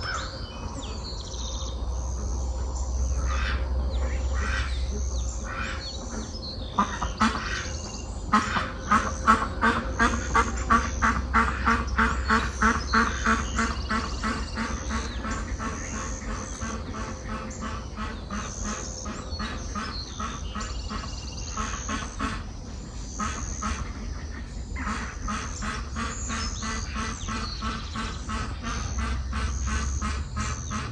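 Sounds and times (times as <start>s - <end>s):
songbirds singing: 0.0s - 30.9s
duck quacking: 3.1s - 30.9s.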